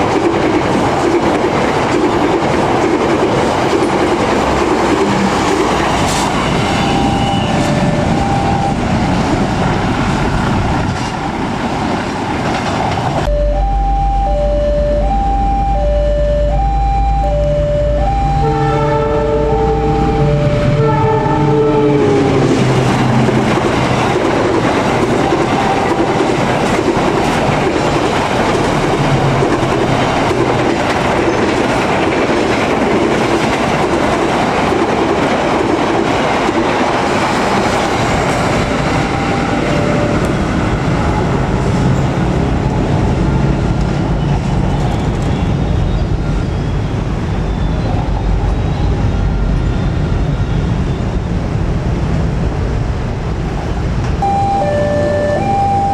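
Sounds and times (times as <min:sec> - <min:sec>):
train wheels rattling over rails: 0:00.0 - 0:13.3, 0:22.0 - 0:50.7.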